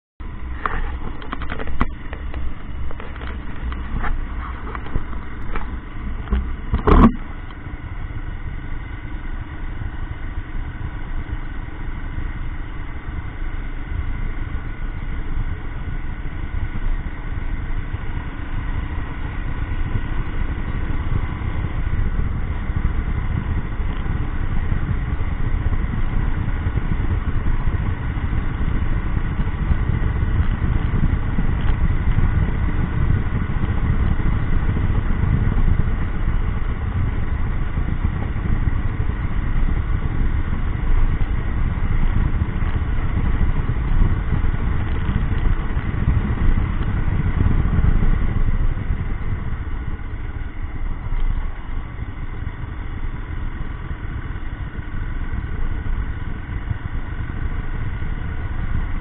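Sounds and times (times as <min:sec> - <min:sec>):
motorcycle engine running: 0:00.0 - 0:59.0
road noise: 0:00.2 - 0:59.0
sharp clicks and knocks: 0:00.6 - 0:07.6.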